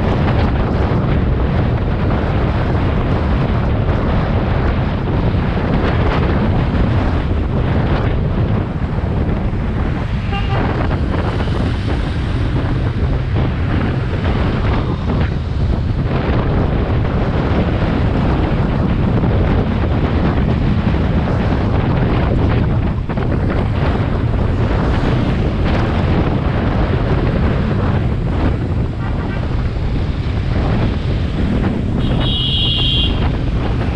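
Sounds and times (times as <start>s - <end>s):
motorcycle engine and road noise: 0.0s - 33.9s
wind buffeting microphone: 0.0s - 33.9s.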